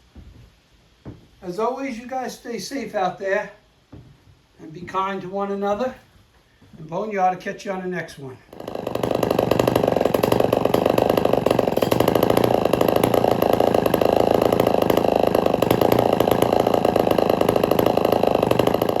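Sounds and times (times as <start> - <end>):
chainsaw engine running: 8.5 - 19.0.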